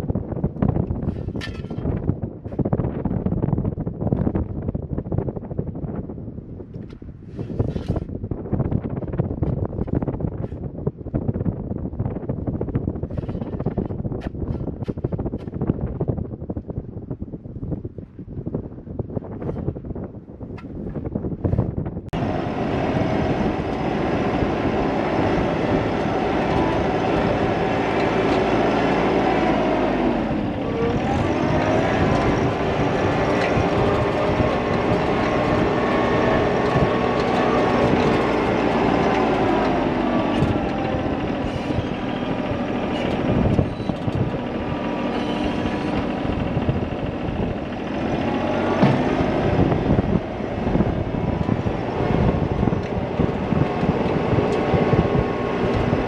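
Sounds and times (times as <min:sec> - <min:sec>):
large engine running: 0:22.1 - 0:56.0.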